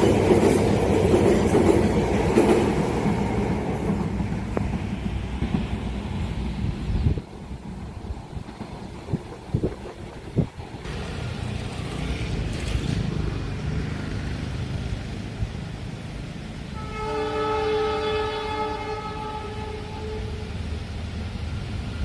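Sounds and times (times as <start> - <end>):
train rumbling: 0.0 - 22.0
locomotive horn chord: 16.8 - 20.6.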